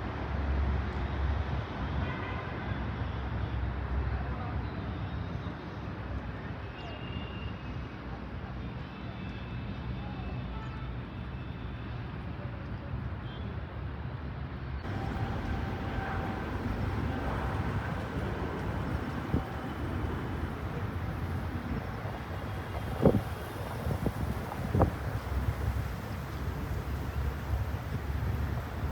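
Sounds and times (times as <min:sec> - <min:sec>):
distant engine rumble: 0:14.9 - 0:28.9
wind buffeting microphone: 0:14.9 - 0:28.9.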